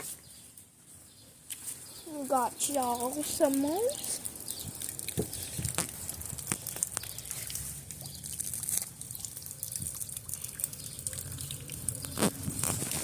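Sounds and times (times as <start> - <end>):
rain falling: 2.1 - 13.0
sharp drip taps: 2.6 - 12.8.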